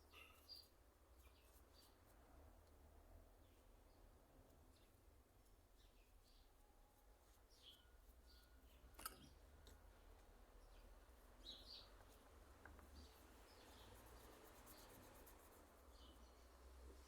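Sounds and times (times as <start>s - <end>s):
faint bird chirps: 0.0s - 2.0s.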